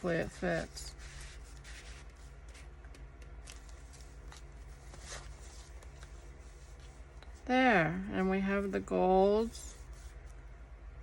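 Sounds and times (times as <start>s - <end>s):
paper rustling and sliding: 0.4s - 2.7s, 3.4s - 7.0s.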